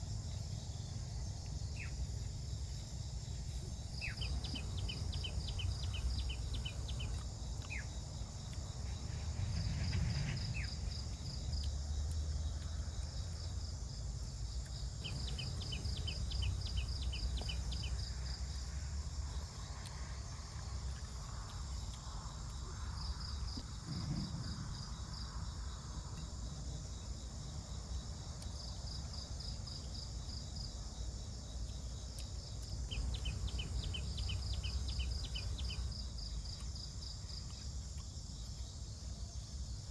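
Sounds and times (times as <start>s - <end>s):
low rumble: 0.0s - 26.0s
insects chirping: 0.0s - 39.9s.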